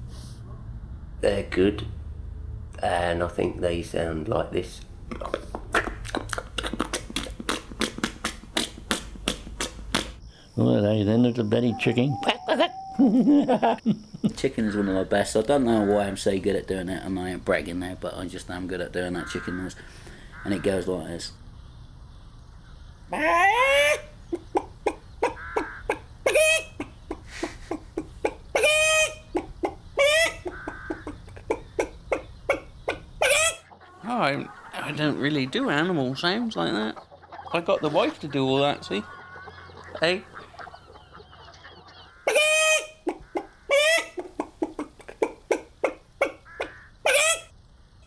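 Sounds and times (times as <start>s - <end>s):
person imitating chicken clucks: 5.1s - 10.3s, 11.4s - 15.0s, 23.1s - 35.0s, 39.9s - 47.5s
person imitating chicken squawks: 5.7s - 10.2s, 11.6s - 13.1s, 23.1s - 32.6s, 33.2s - 34.6s, 42.3s - 47.5s.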